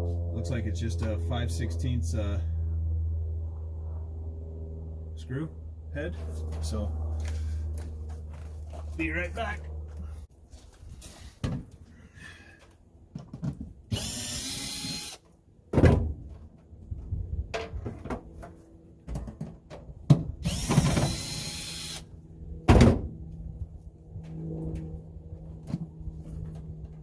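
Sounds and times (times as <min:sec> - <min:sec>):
power drill running: 0:13.9 - 0:15.2, 0:20.4 - 0:22.1.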